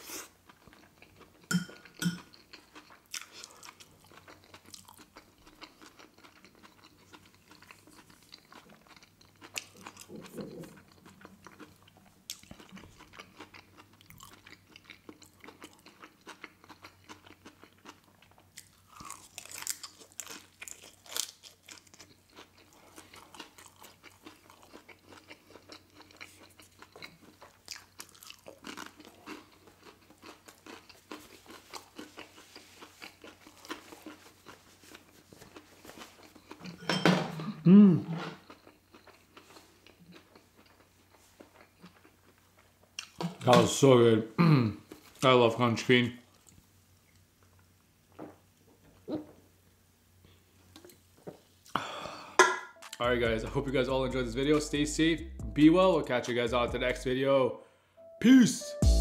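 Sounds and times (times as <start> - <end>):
biting and chewing crispy food: 2.2 - 36.7, 38.4 - 43.2.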